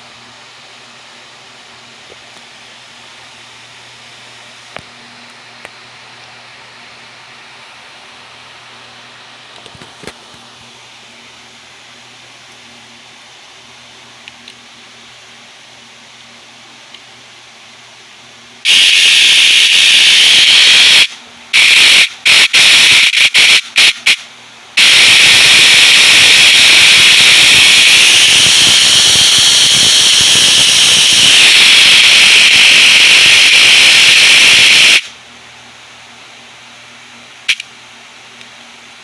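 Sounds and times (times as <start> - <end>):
small electric motor whining: 24.8 - 35.0.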